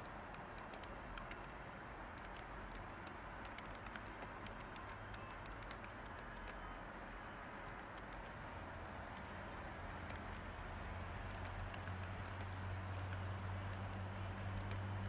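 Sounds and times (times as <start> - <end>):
keyboard key clicks: 0.0 - 6.6, 7.6 - 8.4, 9.9 - 10.5, 11.3 - 13.2, 14.4 - 14.8.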